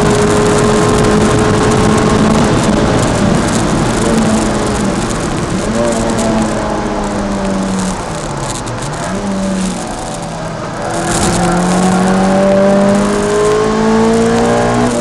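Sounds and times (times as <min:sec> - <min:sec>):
car engine revving in cabin: 0:00.0 - 0:15.0.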